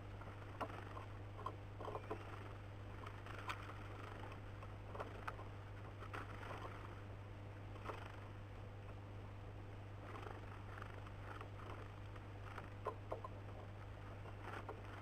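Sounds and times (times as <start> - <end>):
steady low hum: 0.0 - 15.0
birds tapping at a feeder: 12.6 - 13.6.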